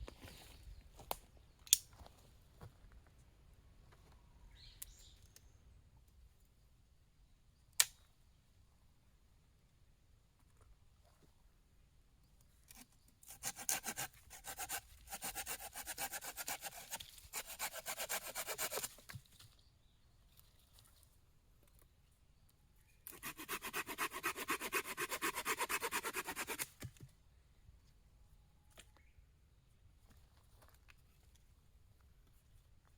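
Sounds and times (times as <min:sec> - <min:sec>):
hand saw cutting wood: 0:13.2 - 0:19.0, 0:23.1 - 0:26.8.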